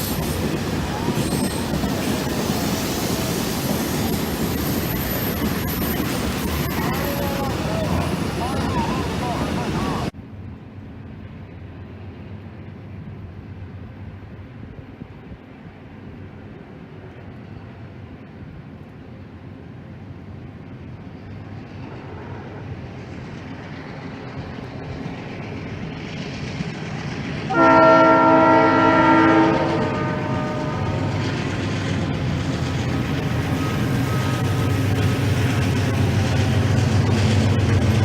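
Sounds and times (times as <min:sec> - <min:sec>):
train rumble: 0:00.0 - 0:38.0
train horn chord: 0:27.5 - 0:31.2.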